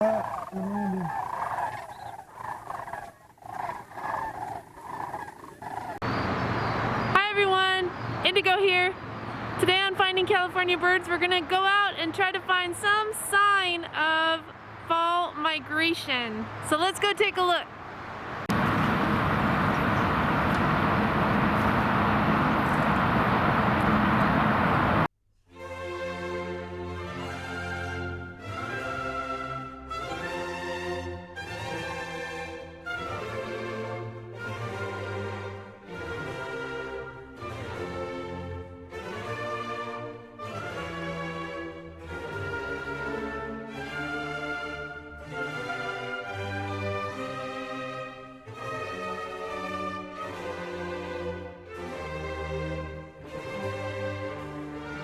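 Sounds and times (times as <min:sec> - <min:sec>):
animal calling: 0:00.0 - 0:07.1
moving vehicle running noise: 0:06.0 - 0:07.2, 0:09.0 - 0:09.6, 0:17.7 - 0:25.1.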